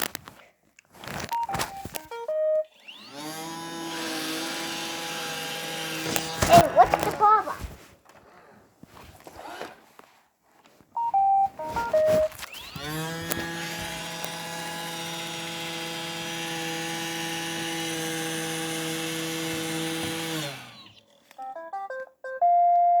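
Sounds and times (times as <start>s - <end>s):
short electronic beeps: 1.3s - 2.7s, 11.0s - 12.3s, 21.4s - 23.0s
robot vacuum motor whine: 2.7s - 7.2s, 12.3s - 21.5s.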